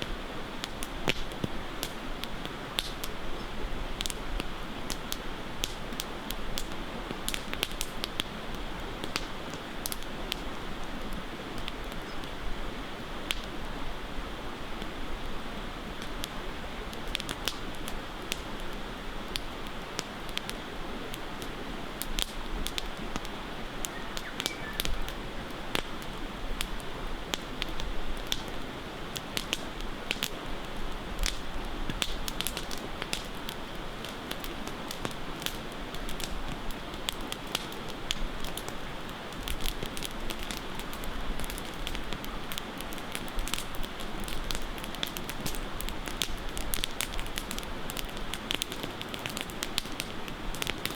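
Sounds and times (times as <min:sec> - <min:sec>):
campfire crackling and popping: 0:00.0 - 0:50.9
flowing water rushing: 0:20.7 - 0:29.1.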